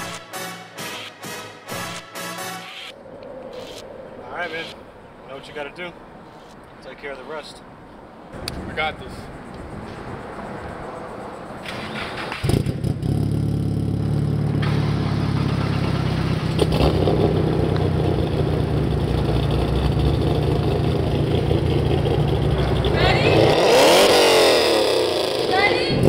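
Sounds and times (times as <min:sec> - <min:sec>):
car engine idling and revving: 0:09.4 - 0:26.0.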